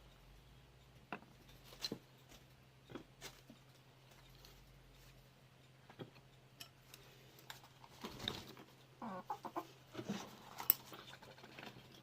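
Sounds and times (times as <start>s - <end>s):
hens clucking: 8.0s - 10.5s.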